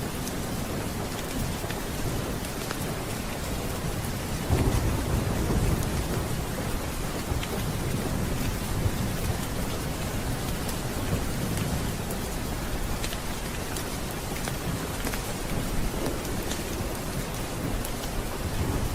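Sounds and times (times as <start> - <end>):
steady rain: 0.0 - 18.9
thunder rumbling: 3.8 - 13.0, 14.0 - 18.9.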